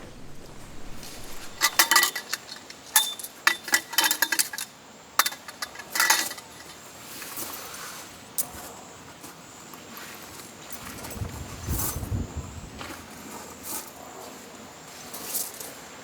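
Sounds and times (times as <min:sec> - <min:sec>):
utensils and dishes clinking: 0:01.0 - 0:06.9.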